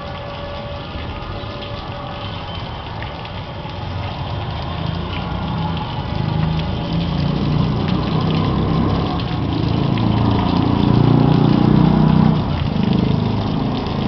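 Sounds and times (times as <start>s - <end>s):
water gushing from pipe: 0.0s - 14.0s
water pump running: 0.0s - 14.0s.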